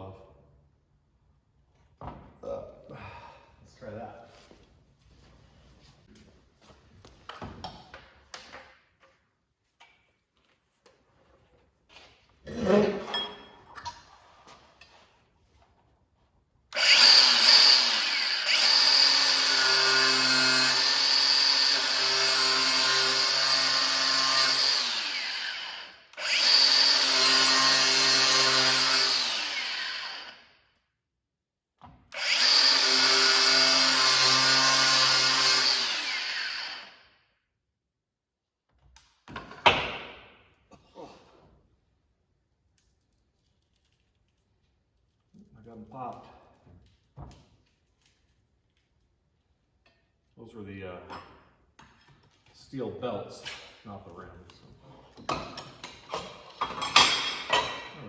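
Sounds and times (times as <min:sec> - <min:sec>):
cutoff wheel cutting tire: 0:16.8 - 0:30.4.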